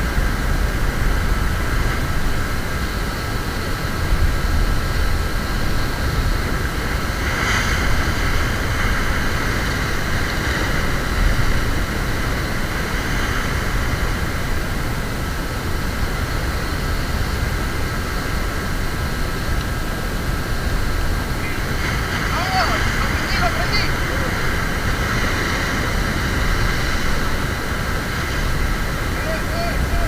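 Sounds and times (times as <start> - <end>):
surf washing on beach: 0.0 - 30.0
wind rumbling on microphone: 0.0 - 30.0.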